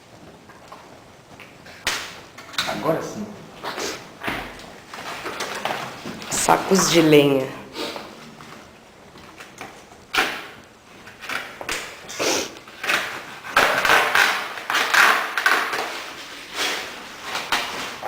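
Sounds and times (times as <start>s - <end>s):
bags of firewood rustling: 10.8s - 18.0s.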